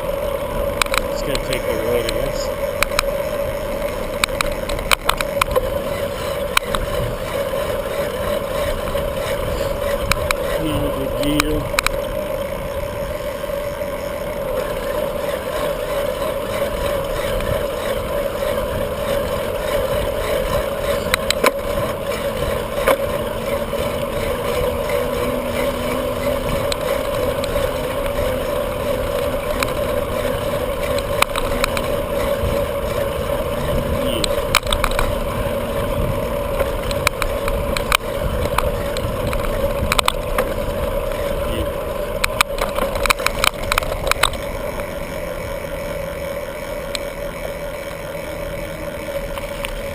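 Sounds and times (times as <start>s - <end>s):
bicycle tyres rolling: 0.0s - 49.9s
wind buffeting microphone: 2.6s - 13.4s, 16.4s - 44.6s
clicks and rattles: 3.8s - 5.8s, 8.6s - 12.1s, 19.2s - 33.0s, 33.7s - 35.3s, 36.6s - 41.2s, 42.2s - 44.5s.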